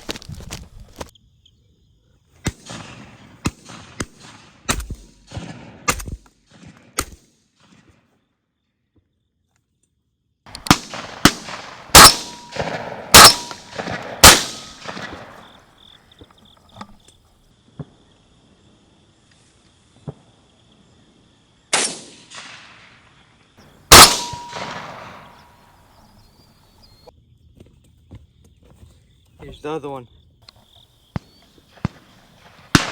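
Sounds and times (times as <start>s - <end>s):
shotgun blasts echoing: 2.4s - 7.7s, 10.5s - 15.6s, 21.7s - 22.9s, 23.9s - 25.9s, 31.2s - 32.9s.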